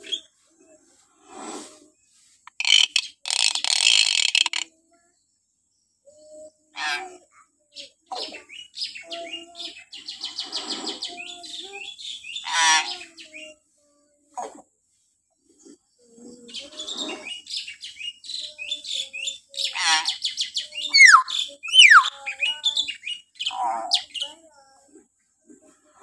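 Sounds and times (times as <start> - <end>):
myna bird shrill calls: 16.8 - 24.3.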